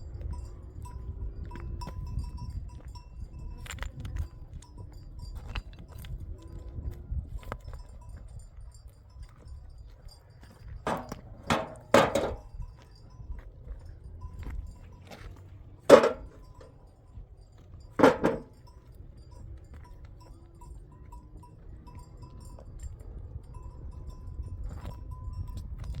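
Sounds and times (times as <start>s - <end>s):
sharp knocks of hard objects: 10.9s - 12.4s, 15.9s - 16.4s, 18.0s - 18.5s.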